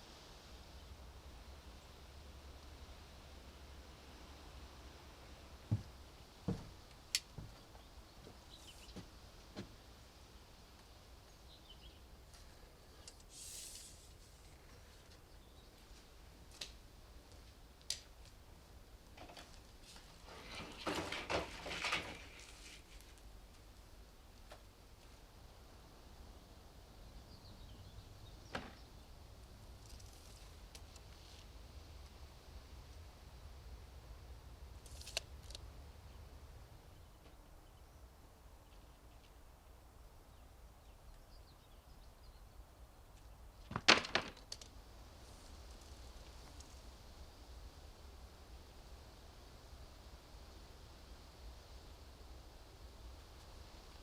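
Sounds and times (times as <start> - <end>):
faint clicks: 13.0 - 13.9
scraping and knocking: 20.2 - 22.9
sharp cracks and knocks: 43.6 - 44.8.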